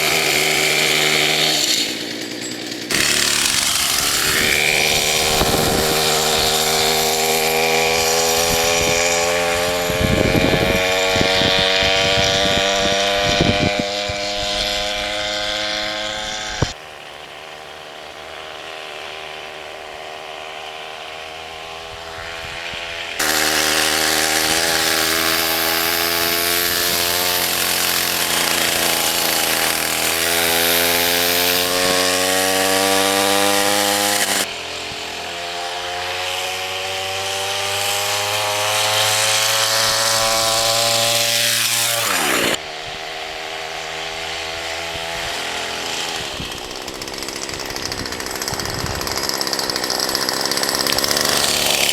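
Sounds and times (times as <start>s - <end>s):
rough thumping: 0.0s - 9.7s
chainsaw engine revving: 0.0s - 51.9s.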